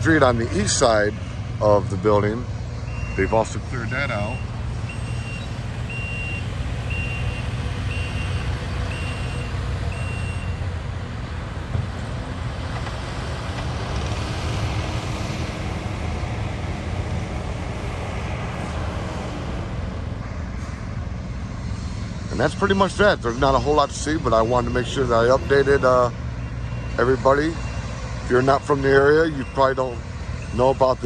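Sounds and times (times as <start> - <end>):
engine and traffic rumble: 0.0 - 31.0
reverse backup alarm beeping: 2.8 - 10.7, 26.4 - 31.0.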